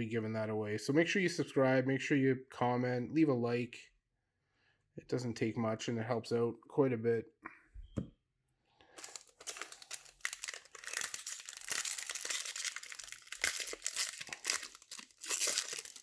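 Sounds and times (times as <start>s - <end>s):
plastic wrapper crinkling and tearing: 8.9s - 16.0s.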